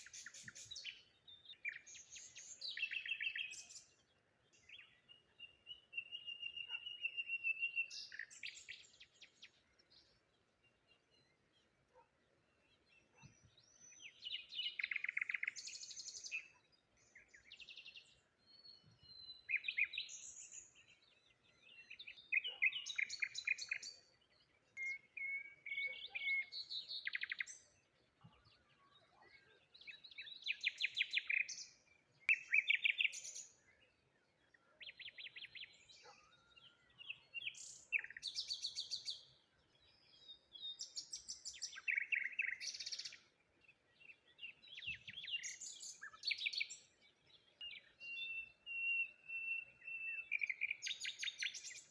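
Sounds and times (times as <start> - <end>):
songbirds chirping and trilling: 0.0 - 51.9.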